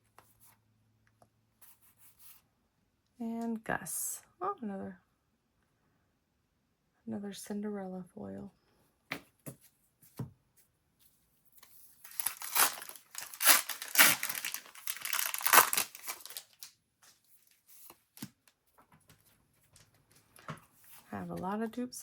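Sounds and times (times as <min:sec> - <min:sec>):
foil wrapper tearing and crinkling: 0:12.0 - 0:16.7.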